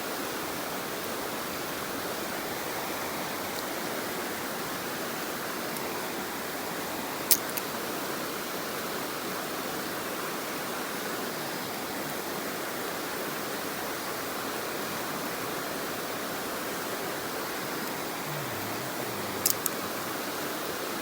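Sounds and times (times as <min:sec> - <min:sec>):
sharp clicks: 0:18.7 - 0:20.0.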